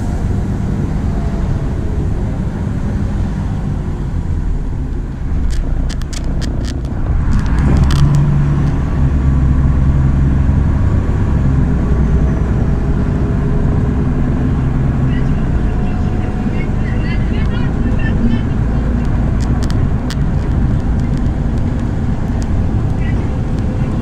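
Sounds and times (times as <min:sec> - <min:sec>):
bus diesel engine running: 0:00.0 - 0:24.0
sharp clicks and rattles: 0:05.2 - 0:09.1, 0:17.3 - 0:24.0.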